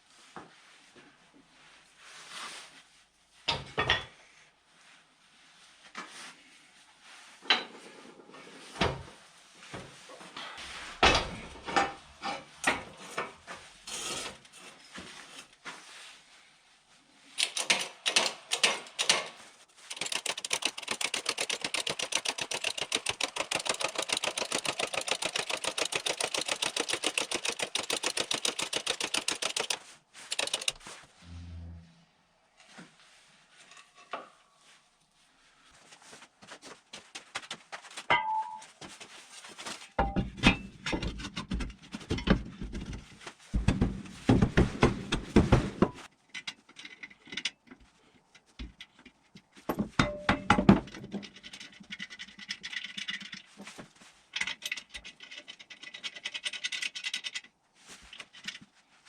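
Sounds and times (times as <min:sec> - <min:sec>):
knocks of tools being handled: 0:09.7 - 0:13.6, 0:17.4 - 0:31.0, 0:40.0 - 0:58.7
rapid even clicking: 0:19.9 - 0:30.8.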